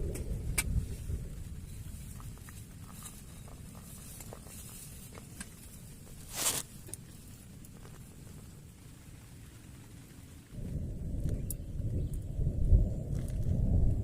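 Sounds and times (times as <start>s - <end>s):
low thunder rumble: 0.0s - 3.7s, 9.8s - 14.0s.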